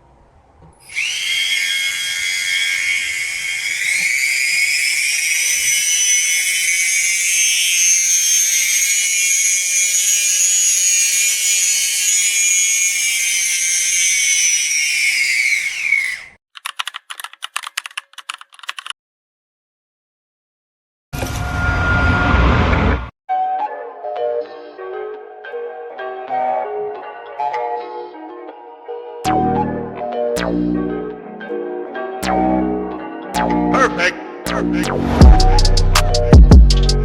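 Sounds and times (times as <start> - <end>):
small power tool whining: 0.8 - 16.4
rapid clicks: 16.6 - 18.9.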